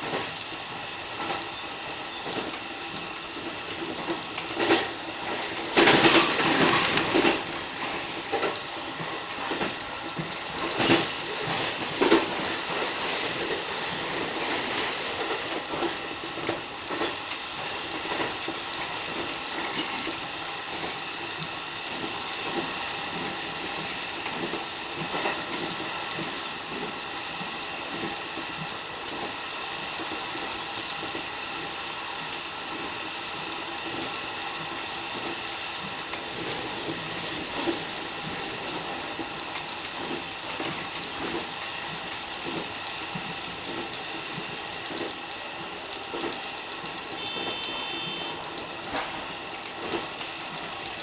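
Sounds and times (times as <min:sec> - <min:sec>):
train rumble and whine: 0:00.0 - 0:51.0
wheels clicking over rail joints: 0:00.0 - 0:51.0.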